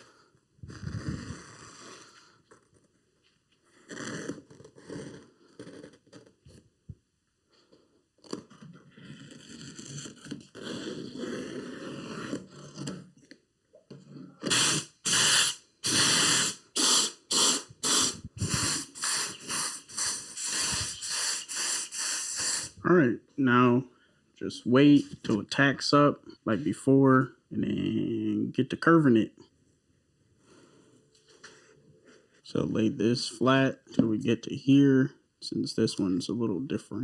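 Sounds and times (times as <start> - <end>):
spray gun hissing bursts: 14.4 - 22.8.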